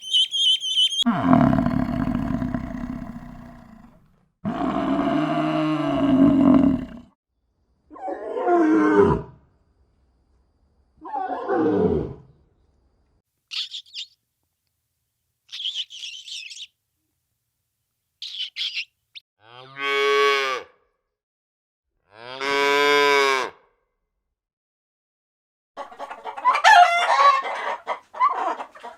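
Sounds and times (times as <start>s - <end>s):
high-pitched bird chirps: 0.0s - 1.1s, 13.5s - 14.2s, 15.5s - 16.7s, 18.2s - 18.9s
cow mooing: 1.1s - 7.1s
short falling roar-like call: 1.1s - 7.1s.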